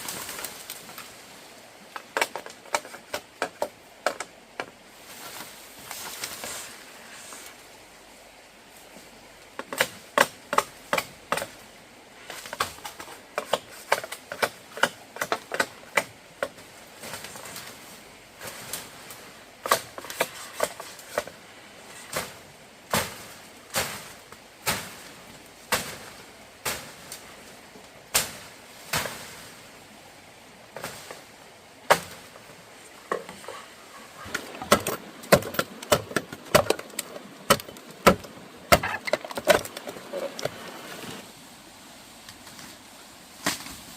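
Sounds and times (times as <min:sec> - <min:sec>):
hand tools knocking wood: 0:34.3 - 0:40.6.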